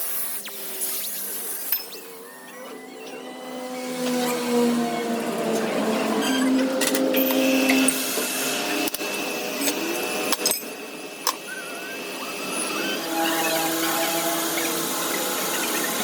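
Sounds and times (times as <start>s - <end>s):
workshop machine whining: 0.0s - 16.0s.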